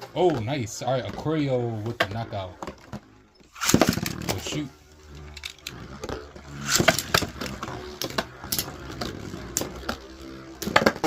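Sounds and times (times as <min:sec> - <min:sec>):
spinning tops whirring: 0:03.4 - 0:11.0
spinning tops clacking together: 0:03.5 - 0:04.5, 0:05.2 - 0:05.8, 0:06.6 - 0:08.8.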